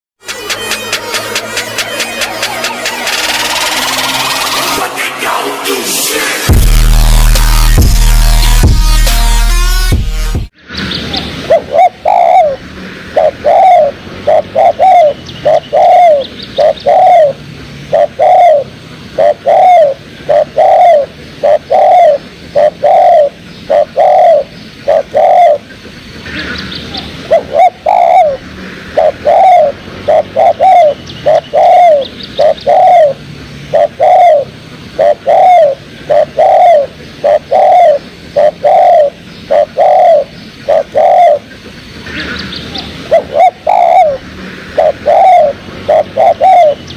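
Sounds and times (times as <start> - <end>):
dove cooing: 11.1 - 46.9.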